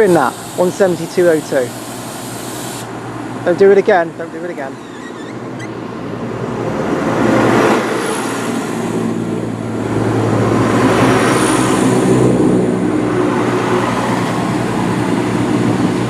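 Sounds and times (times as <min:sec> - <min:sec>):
diesel train engine drone: 0:00.0 - 0:16.0.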